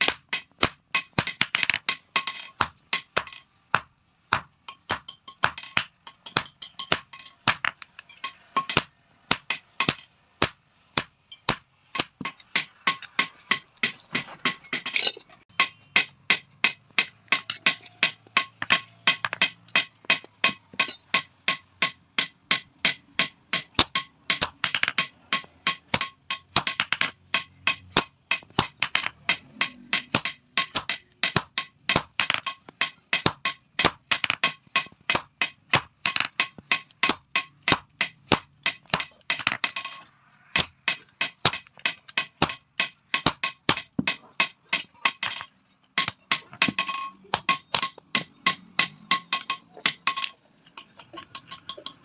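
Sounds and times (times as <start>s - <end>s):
hammer striking metal on anvil: 0.0s - 52.0s.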